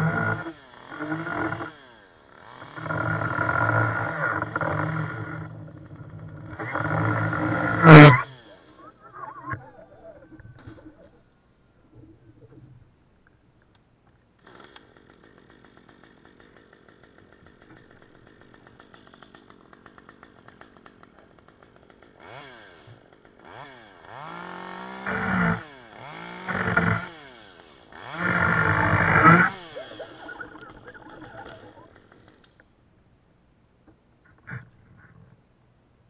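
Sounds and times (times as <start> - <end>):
chainsaw idling and revving: 0.0 - 9.7, 14.4 - 32.7.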